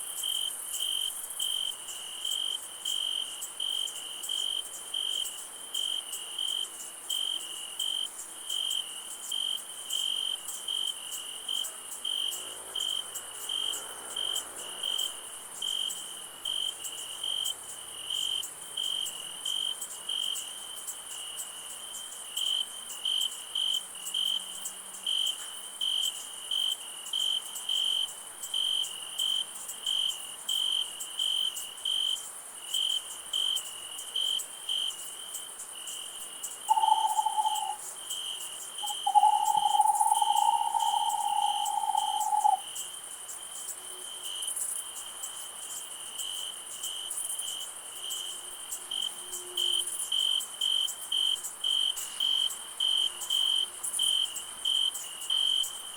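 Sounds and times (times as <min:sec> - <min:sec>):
crickets chirping: 0:00.0 - 0:55.9
high insect hiss: 0:00.0 - 0:55.9
mid-pitched call: 0:36.7 - 0:37.8, 0:38.8 - 0:42.6.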